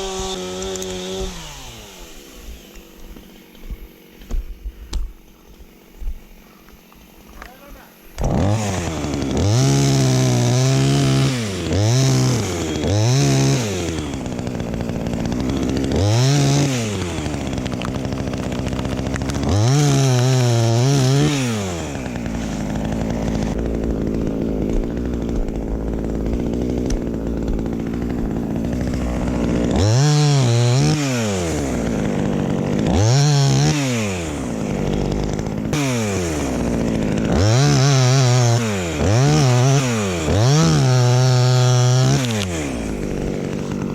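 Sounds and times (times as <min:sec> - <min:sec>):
chainsaw revving: 0:00.0 - 0:04.3, 0:07.2 - 0:43.9.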